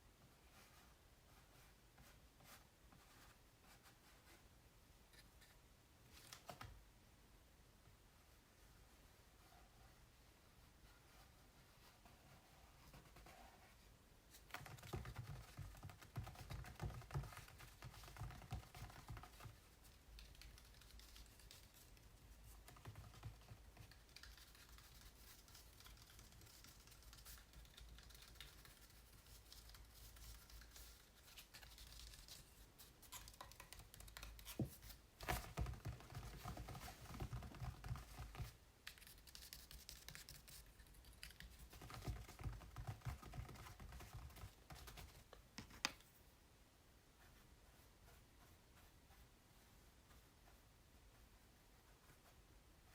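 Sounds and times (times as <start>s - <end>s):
fingers tapping on canvas: 41.7s - 46.0s.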